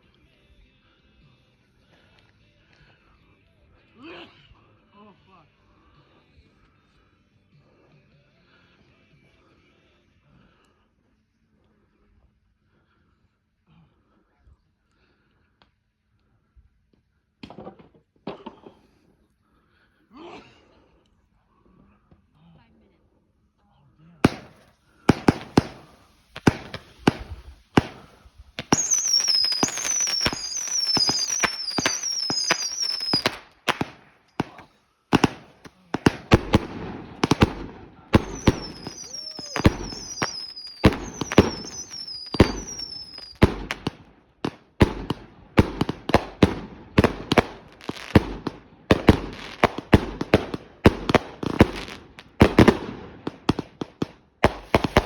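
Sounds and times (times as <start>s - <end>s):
fireworks bangs and crackles: 24.2s - 55.0s
falling firework whistles: 24.3s - 34.6s, 35.2s - 44.0s, 54.4s - 55.0s.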